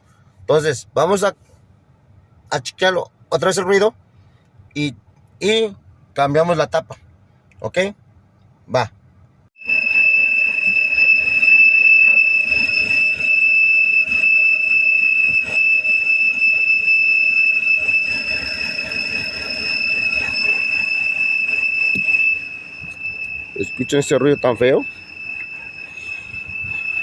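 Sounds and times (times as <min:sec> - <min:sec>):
high-pitched vacuum leak whistle: 0:09.6 - 0:27.0.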